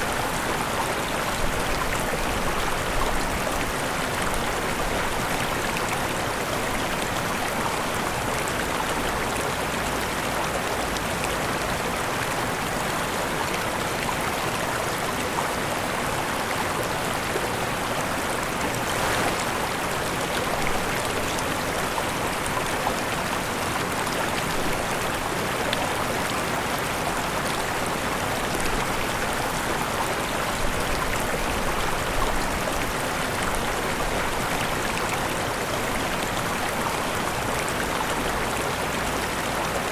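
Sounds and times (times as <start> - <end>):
waterfall rushing: 11.8 - 39.9.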